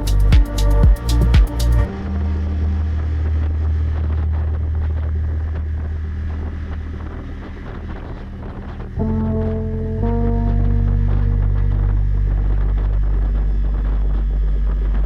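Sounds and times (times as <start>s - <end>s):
music with a beat: 0.0s - 1.9s
low drone: 0.0s - 15.0s.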